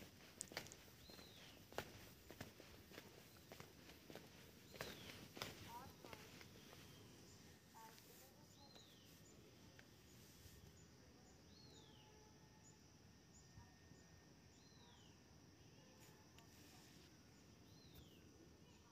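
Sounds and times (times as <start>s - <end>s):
faint outdoor ambience: 0.0s - 18.9s.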